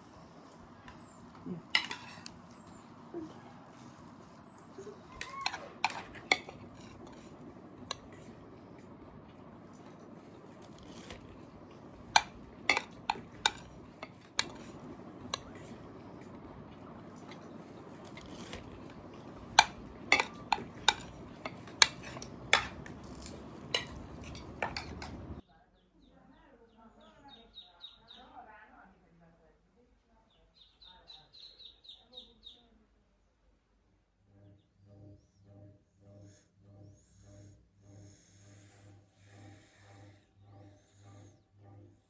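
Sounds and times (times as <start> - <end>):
kitchenware clinking: 0.4 - 8.6, 9.6 - 25.4.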